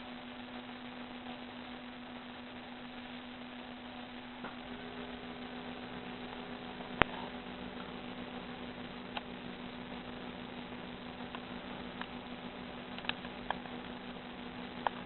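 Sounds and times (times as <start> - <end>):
constant hiss: 0.0 - 15.0
low steady hum: 0.0 - 15.0
faint ticks: 11.2 - 12.2, 12.9 - 13.8, 14.8 - 15.0.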